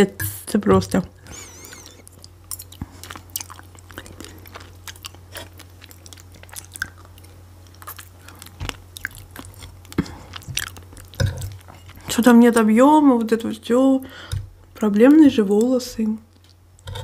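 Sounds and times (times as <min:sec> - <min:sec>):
person chewing food: 0:01.3 - 0:12.7, 0:16.3 - 0:17.0.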